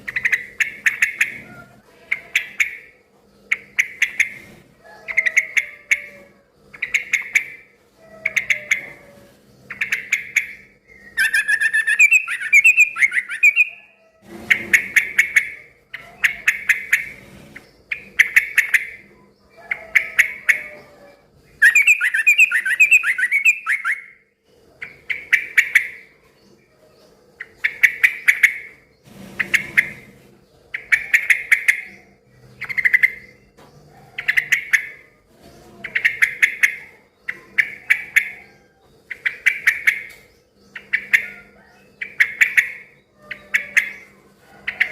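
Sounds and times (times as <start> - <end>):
bird rapid chattering: 0.0 - 6.1, 6.7 - 7.7, 9.7 - 13.9, 14.5 - 20.8, 21.6 - 24.2, 24.8 - 26.2, 27.4 - 33.5, 35.8 - 44.9
bird singing bubbling phrases: 9.7 - 14.0, 21.6 - 24.2.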